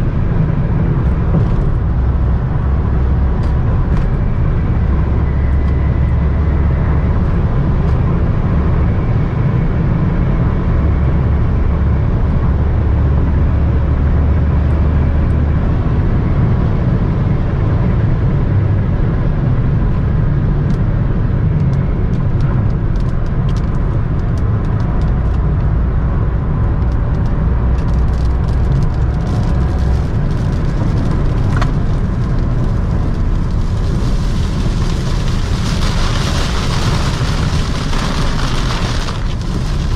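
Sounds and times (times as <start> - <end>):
car interior road drone: 0.0 - 39.9
raindrops hitting car: 26.7 - 39.9.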